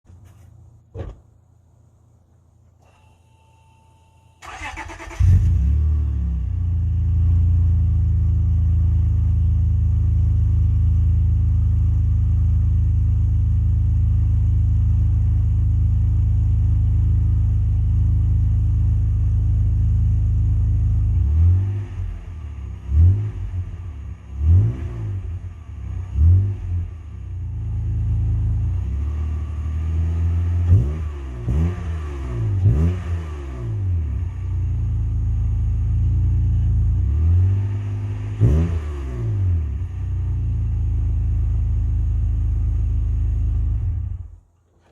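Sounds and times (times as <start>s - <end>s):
car engine cranking and starting: 2.7s - 9.2s
car engine revving: 4.4s - 12.6s, 20.2s - 44.3s.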